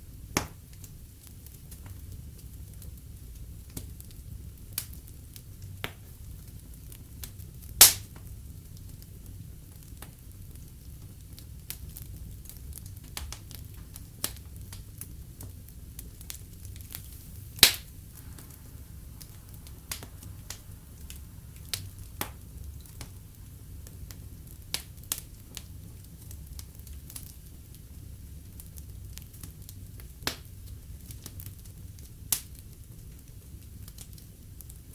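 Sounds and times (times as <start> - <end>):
fireplace fire crackling: 0.0 - 34.9
loud pop from fire: 7.8 - 8.3, 16.2 - 25.7.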